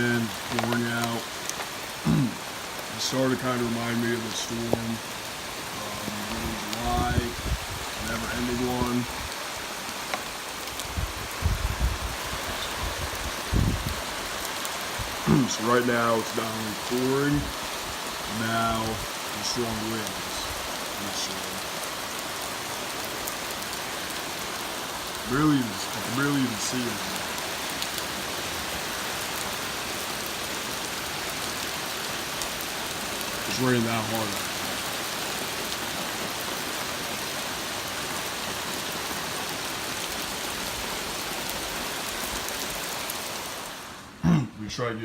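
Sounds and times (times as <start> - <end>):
torrential rain pouring: 0.0 - 45.0
raindrop ticks: 0.2 - 3.5, 4.3 - 5.1, 5.8 - 7.3, 9.8 - 10.9.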